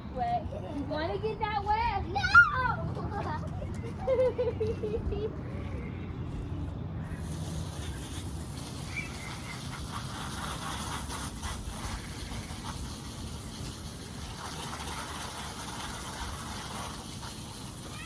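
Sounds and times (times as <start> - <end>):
water spraying onto wire cage: 7.1 - 18.0.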